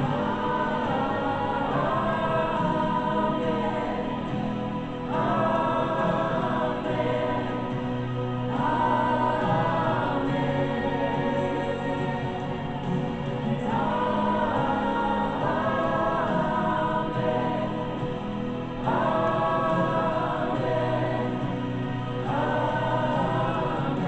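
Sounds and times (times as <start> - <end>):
congregation singing worship song: 0.0 - 24.0
low keyboard accompaniment: 0.0 - 24.0.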